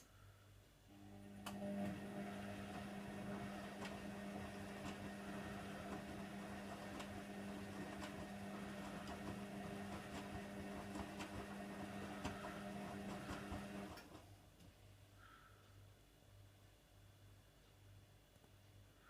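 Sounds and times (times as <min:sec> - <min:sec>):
washing machine motor hum: 0:00.9 - 0:14.4.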